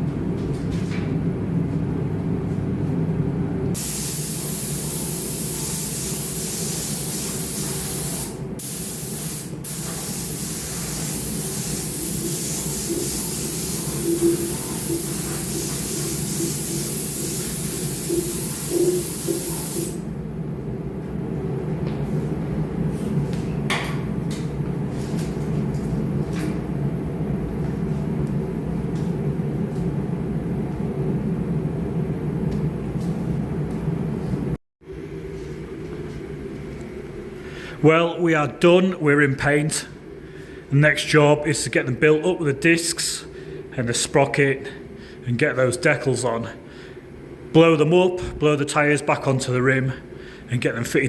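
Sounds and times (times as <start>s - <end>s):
steady low hum: 0.0s - 51.0s
paint spraying hiss: 3.8s - 20.0s.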